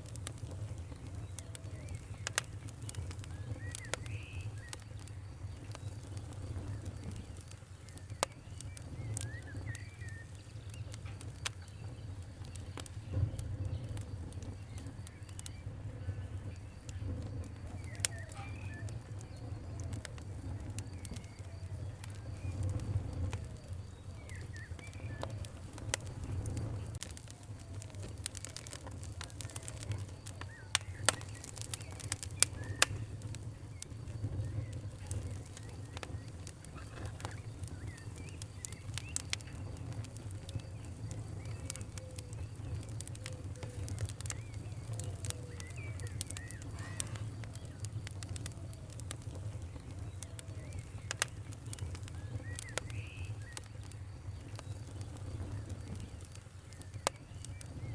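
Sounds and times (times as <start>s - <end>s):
sharp pops of fire: 0.0s - 57.9s
wood fire crackling: 0.0s - 57.9s.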